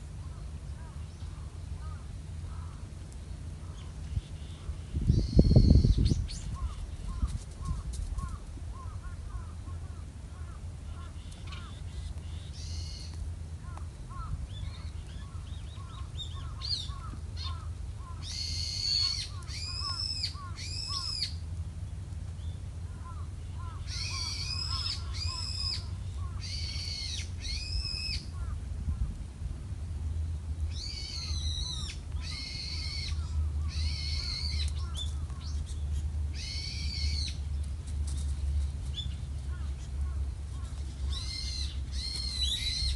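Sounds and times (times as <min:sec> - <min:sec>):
steady low rumble: 0:00.0 - 0:42.9.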